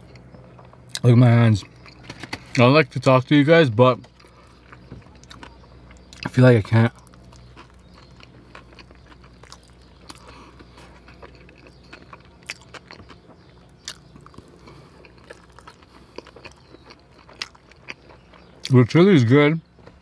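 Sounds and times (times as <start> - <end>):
person chewing with mouth open: 1.6 - 2.6, 4.0 - 18.7.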